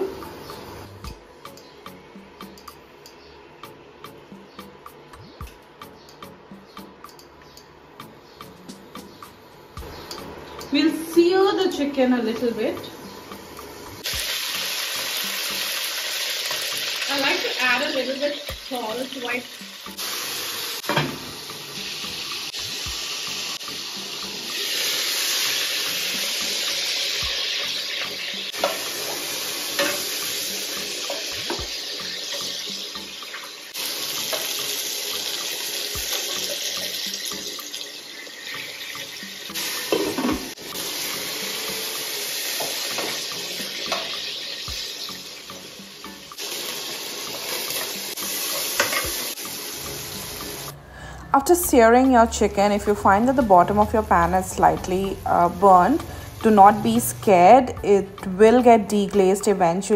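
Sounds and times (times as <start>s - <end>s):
chicken sizzling in hot oil: 10.1s - 50.8s, 52.8s - 57.1s.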